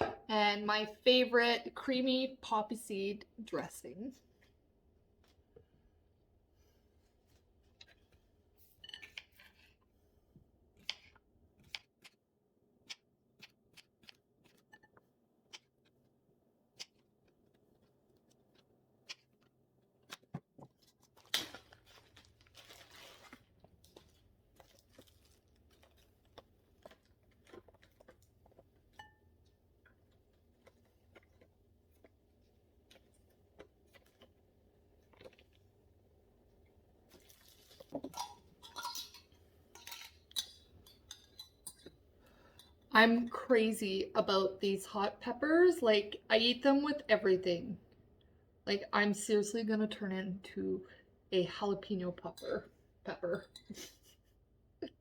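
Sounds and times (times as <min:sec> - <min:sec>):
lettuce rustling and tearing: 0:16.8 - 0:28.8, 0:37.0 - 0:38.3.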